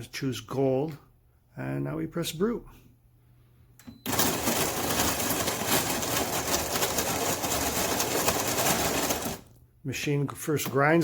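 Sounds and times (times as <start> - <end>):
coffee grinder grinding beans: 4.1 - 9.5.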